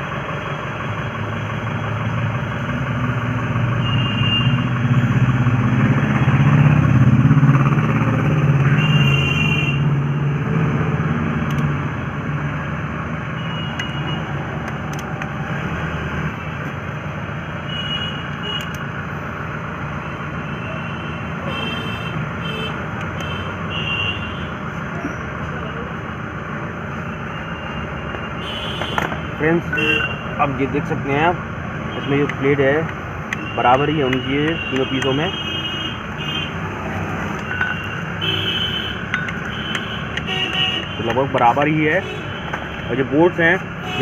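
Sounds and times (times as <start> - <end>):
vehicle engine idling: 0.0 - 9.4.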